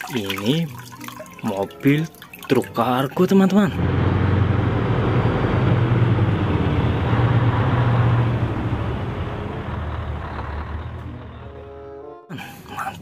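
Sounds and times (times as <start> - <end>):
truck diesel engine droning: 3.7 - 12.8.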